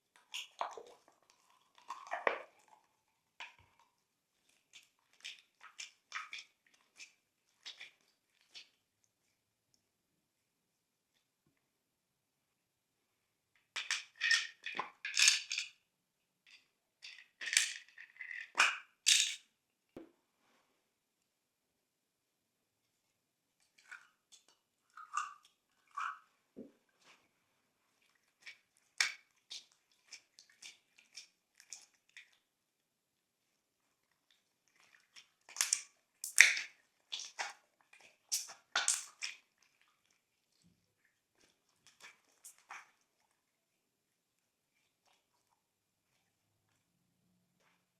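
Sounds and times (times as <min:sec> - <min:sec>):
slime squishing with wet crackles: 0:00.0 - 0:09.9, 0:23.2 - 0:47.9.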